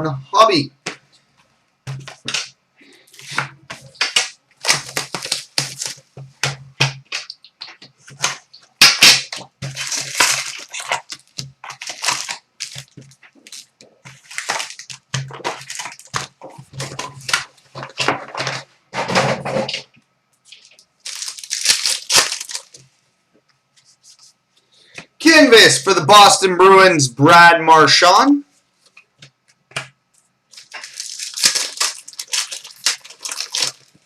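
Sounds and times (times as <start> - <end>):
card packaging tearing and crinkling: 2.1 - 6.1, 7.1 - 18.6, 20.5 - 22.8, 30.5 - 34.0.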